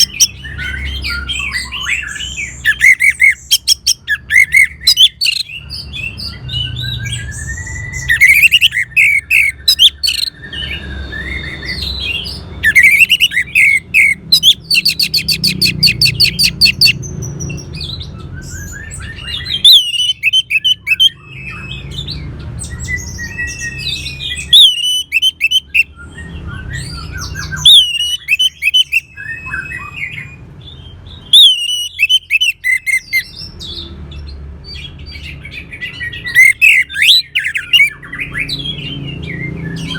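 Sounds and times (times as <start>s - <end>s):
thrush singing: 0.0s - 30.3s.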